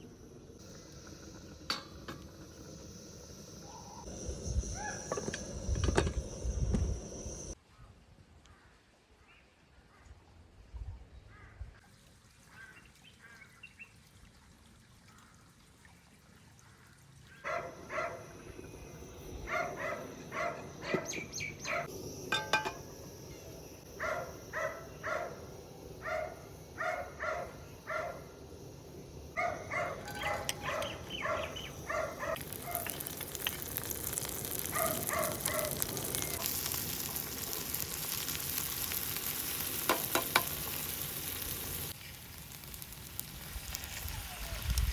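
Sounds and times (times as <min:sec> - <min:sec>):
food sizzling in a pan: 0:00.0 - 0:07.6, 0:17.7 - 0:44.9
bird calling: 0:17.4 - 0:21.9, 0:29.2 - 0:33.3.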